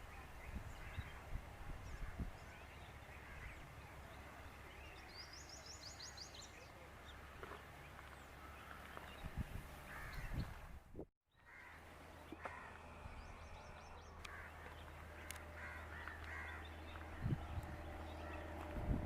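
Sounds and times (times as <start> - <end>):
crows cawing: 9.9 - 10.3, 11.4 - 11.8, 12.4 - 12.9, 14.2 - 17.1
steady low rumble: 13.0 - 19.0.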